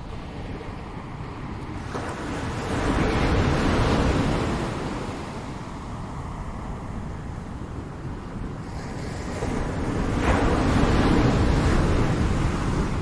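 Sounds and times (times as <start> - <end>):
ocean surf on shore: 0.0 - 13.0.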